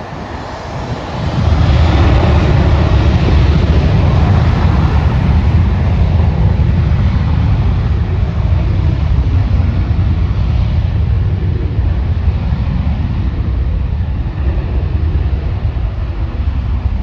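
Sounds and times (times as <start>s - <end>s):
jet engine hiss: 0.0s - 7.2s
jet engine rumble: 0.0s - 17.0s.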